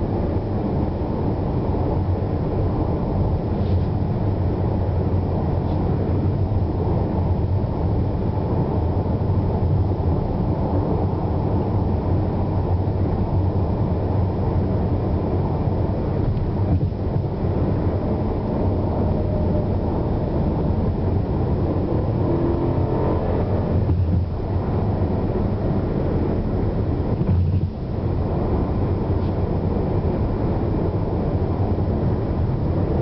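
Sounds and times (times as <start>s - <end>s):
road noise inside car: 0.0s - 33.0s
car engine accelerating: 16.0s - 33.0s.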